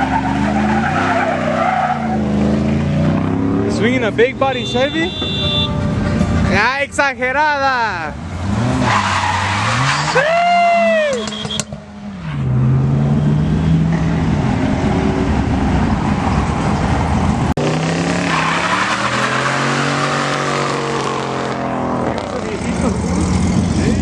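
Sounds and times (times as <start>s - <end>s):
tyres skidding and squealing: 0.0s - 24.0s
car engine revving hard: 8.2s - 10.2s, 17.6s - 24.0s.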